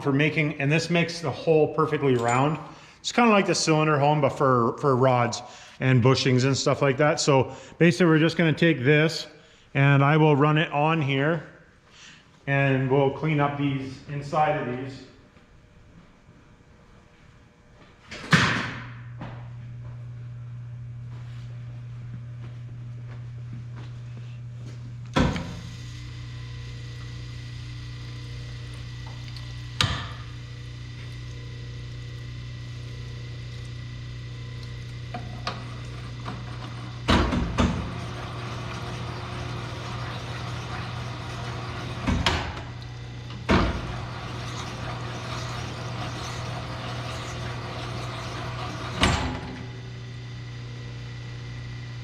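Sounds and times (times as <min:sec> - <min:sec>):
hone machine humming: 0:19.2 - 0:52.0.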